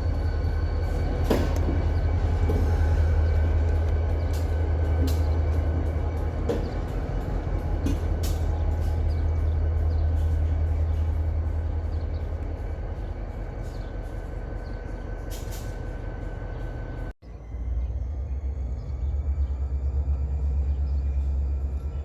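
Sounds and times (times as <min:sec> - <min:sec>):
wheels clacking over rail joints: 0:00.0 - 0:17.1
locomotive low rumble: 0:00.0 - 0:22.0.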